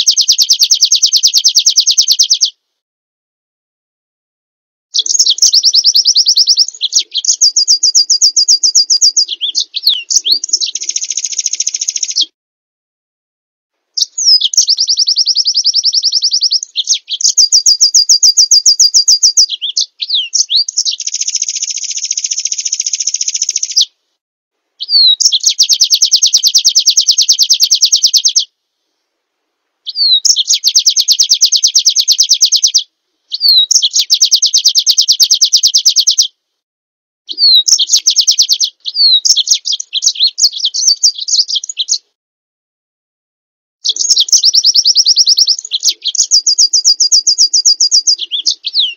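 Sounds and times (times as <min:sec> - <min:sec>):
songbird high trills: 0:05.0 - 0:12.3, 0:14.0 - 0:23.9, 0:24.8 - 0:28.4, 0:37.3 - 0:42.0, 0:43.8 - 0:48.9.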